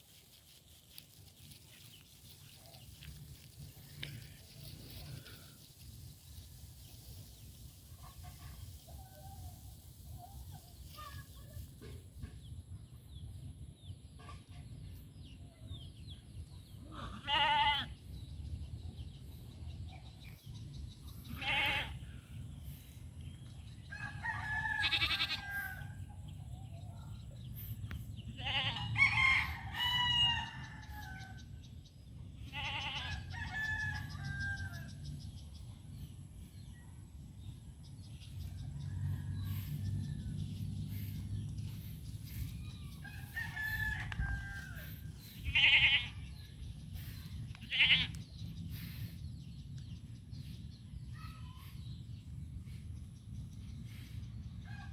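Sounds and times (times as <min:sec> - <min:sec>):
roosters crowing: 0:23.8 - 0:26.1, 0:28.4 - 0:31.5, 0:32.5 - 0:35.1, 0:38.5 - 0:46.3
steady low rumble: 0:30.5 - 0:54.9.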